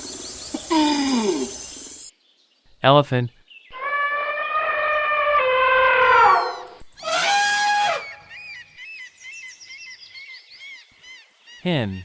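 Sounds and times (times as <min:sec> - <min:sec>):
small birds chirping: 0:00.0 - 0:03.8, 0:08.0 - 0:12.0
elephant trumpeting: 0:03.8 - 0:08.2.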